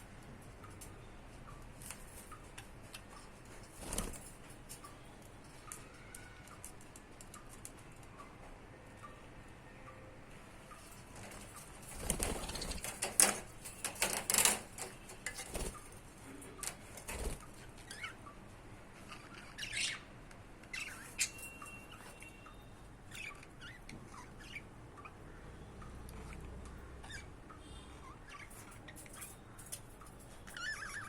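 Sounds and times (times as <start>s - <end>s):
wings fluttering and rustling: 1.6s - 8.0s, 10.8s - 18.1s.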